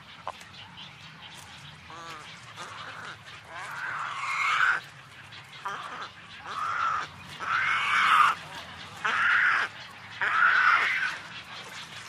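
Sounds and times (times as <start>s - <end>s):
animal calling: 1.9s - 11.4s.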